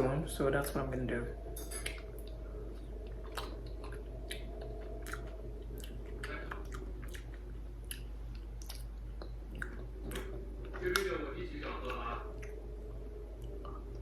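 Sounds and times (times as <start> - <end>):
steady low hum: 0.0 - 14.0
wet mouth sounds: 3.2 - 10.4.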